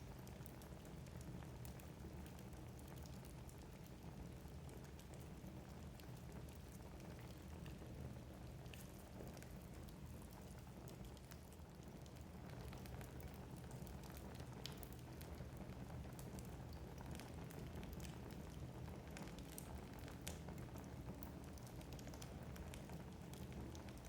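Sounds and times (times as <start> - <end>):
low rumble of flames: 0.0 - 24.0
logs crackling and popping: 8.5 - 24.0.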